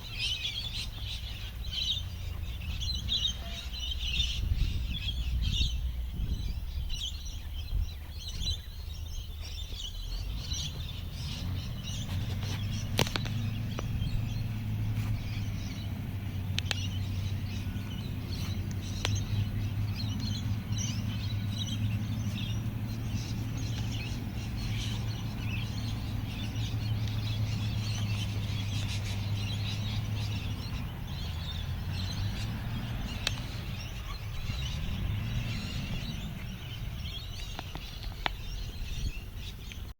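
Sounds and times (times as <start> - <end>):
small birds chirping: 0.0 - 39.9
sharp clicks: 16.5 - 17.0, 33.2 - 33.5.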